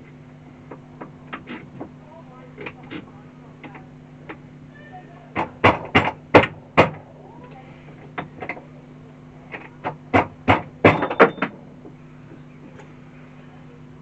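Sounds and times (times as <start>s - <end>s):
steady low hum: 0.0s - 14.0s
parts and tools clicking and knocking: 5.4s - 7.0s, 9.5s - 12.9s.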